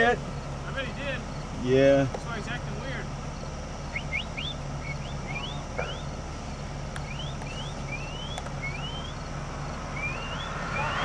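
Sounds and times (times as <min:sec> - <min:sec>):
vehicle engine idling: 0:00.0 - 0:11.0
rising whistled chirps: 0:03.8 - 0:06.2, 0:07.0 - 0:11.0.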